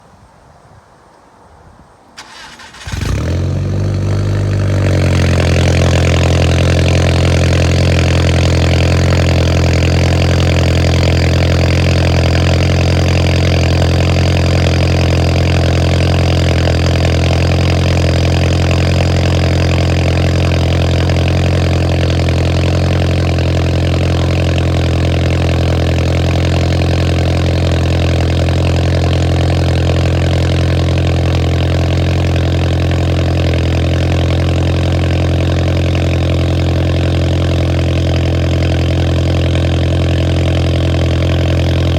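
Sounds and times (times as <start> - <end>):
car engine cold start: 2.2 - 27.8
loud droning engine idle: 2.2 - 41.9.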